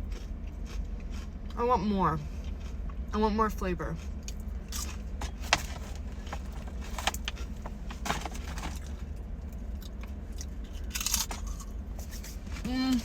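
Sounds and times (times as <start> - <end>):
steady low rumble: 0.0 - 13.0
chip bag crinkling: 4.7 - 9.1.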